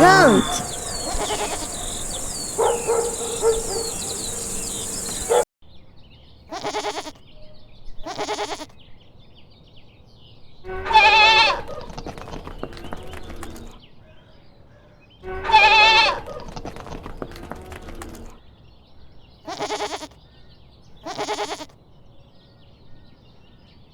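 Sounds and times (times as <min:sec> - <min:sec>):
goats bleating: 0:00.0 - 0:03.2, 0:06.5 - 0:07.1, 0:08.1 - 0:08.6, 0:19.5 - 0:20.1, 0:21.1 - 0:21.7
high chirps: 0:00.0 - 0:05.4.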